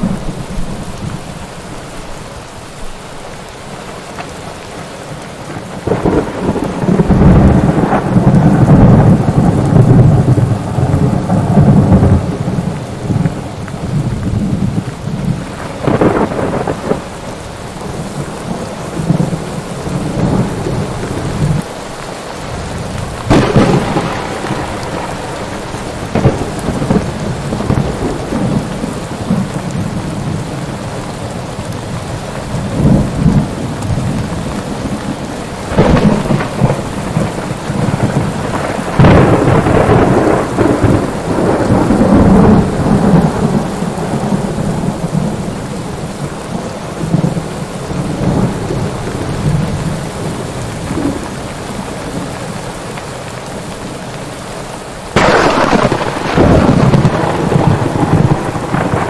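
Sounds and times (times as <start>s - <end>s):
heavy rain: 0.0s - 59.0s
thunder rolling: 5.5s - 21.7s, 22.4s - 30.7s, 32.6s - 46.0s, 55.1s - 59.0s.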